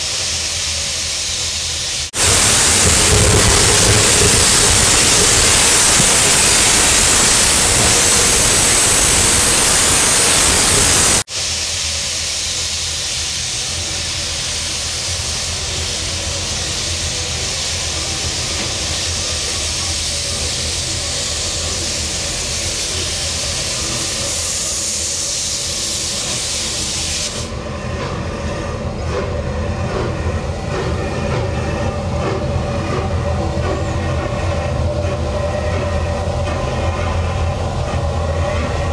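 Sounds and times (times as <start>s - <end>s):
steam hissing: 0.0s - 28.3s
train cars rumbling on rails: 0.0s - 38.9s.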